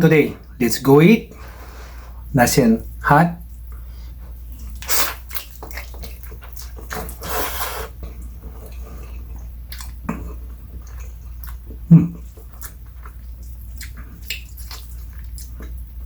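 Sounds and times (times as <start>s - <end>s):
chewing noodles: 3.5s - 16.0s.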